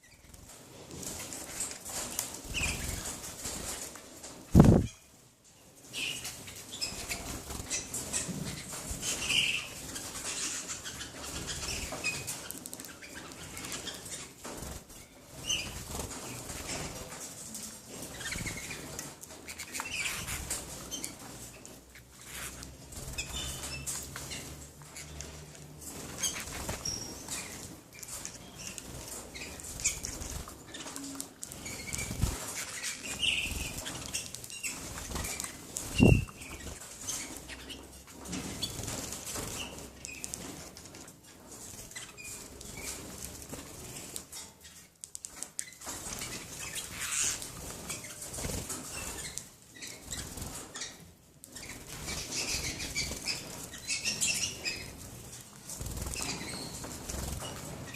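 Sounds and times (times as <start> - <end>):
birds flapping wings: 0.3 - 4.9, 25.8 - 37.4, 45.8 - 49.4, 54.4 - 57.9.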